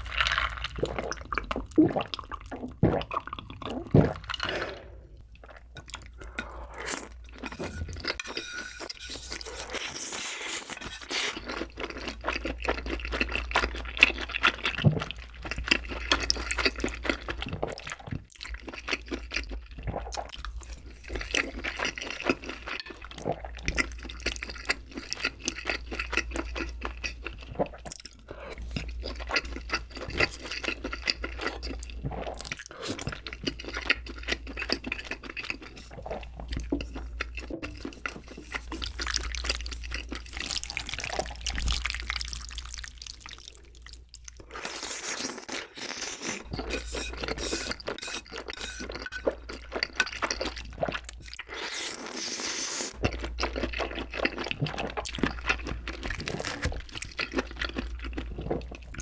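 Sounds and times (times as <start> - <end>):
noodle slurps: 8.8 - 11.8, 44.5 - 49.3, 50.8 - 53.0
wet chewing: 9.1 - 59.0.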